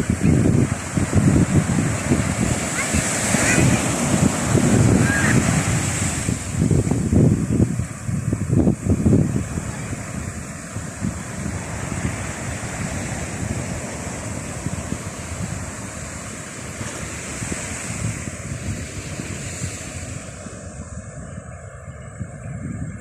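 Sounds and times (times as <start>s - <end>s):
surf breaking on the shore: 0.0s - 23.0s
wind buffeting the microphone: 0.0s - 23.0s.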